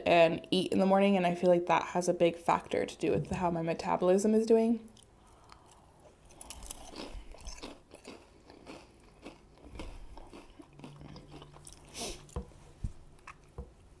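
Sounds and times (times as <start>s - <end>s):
chewing food: 4.9s - 12.5s, 13.1s - 13.7s.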